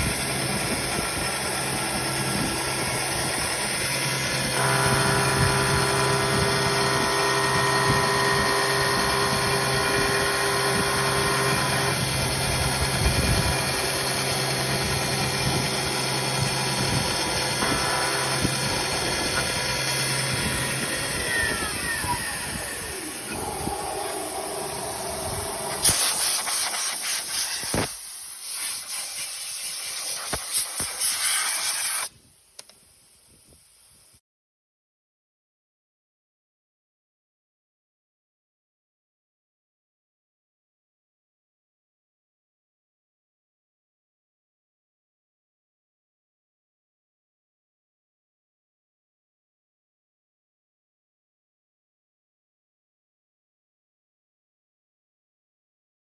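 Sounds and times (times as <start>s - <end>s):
milling machine whine: 0.0s - 26.8s
hissing spray bursts: 22.4s - 32.2s.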